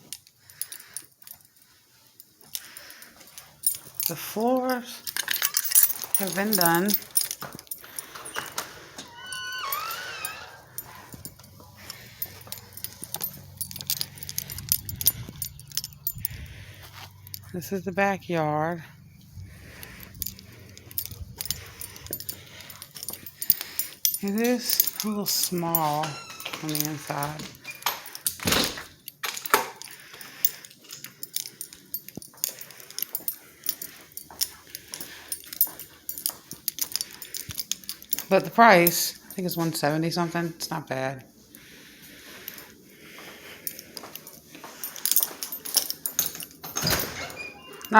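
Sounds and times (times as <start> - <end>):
keys jangling: 0.0 - 40.1, 41.4 - 47.9
metallic jingling and clicks: 0.0 - 47.9
low handling rumble: 10.6 - 22.7.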